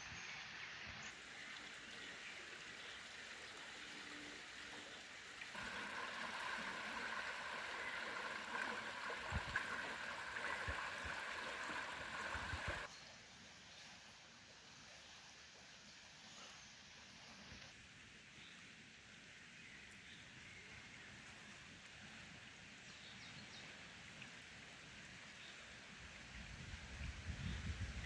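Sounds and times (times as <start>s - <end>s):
stream water rushing: 5.4s - 12.9s.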